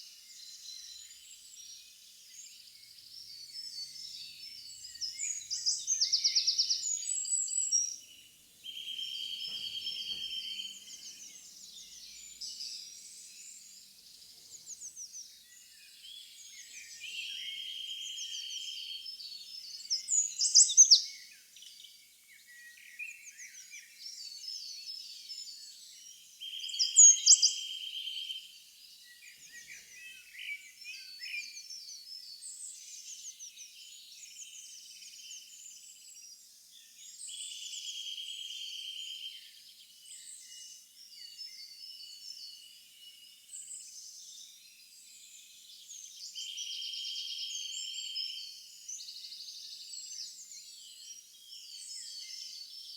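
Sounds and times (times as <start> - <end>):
small birds chirping: 0.0 - 52.9
sharp falling bird calls: 8.7 - 11.4.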